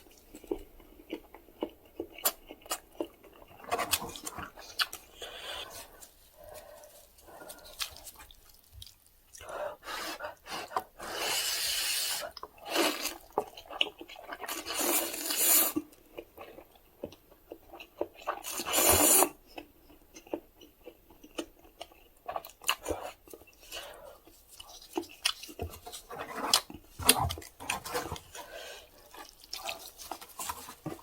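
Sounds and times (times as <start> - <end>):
wet chewing: 0.0 - 9.4, 12.0 - 31.0
noodles being slurped: 10.4 - 15.9, 18.3 - 19.4.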